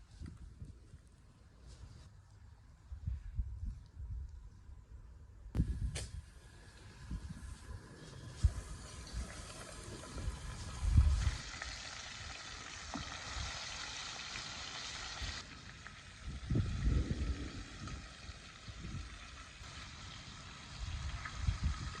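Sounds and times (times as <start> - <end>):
hot oil sizzling: 6.4 - 22.0.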